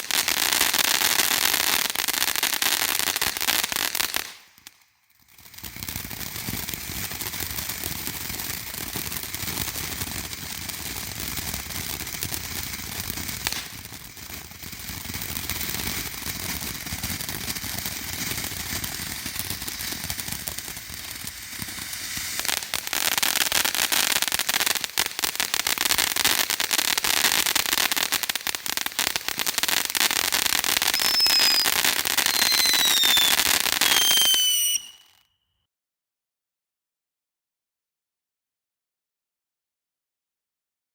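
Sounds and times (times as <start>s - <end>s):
firework fountain crackling: 0.0s - 35.3s
falling whistles: 30.8s - 35.3s.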